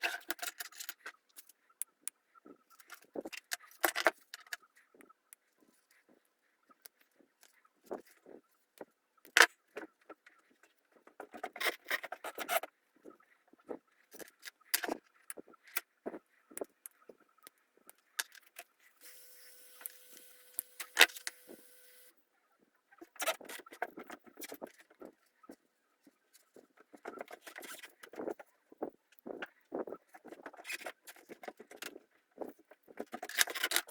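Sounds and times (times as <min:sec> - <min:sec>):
steady hum with held tone: 0:19.0 - 0:22.2.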